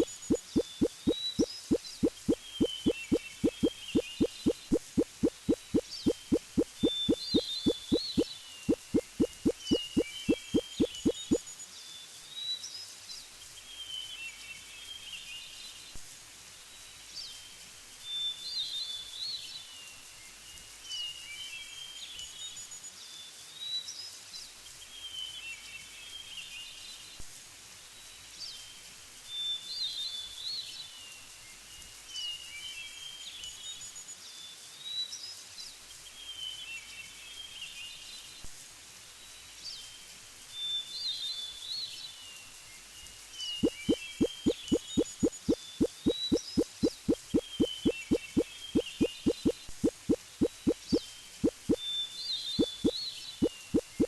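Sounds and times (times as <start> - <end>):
small birds chirping: 0.0 - 11.4, 43.5 - 54.0
faint background hiss: 0.0 - 54.0.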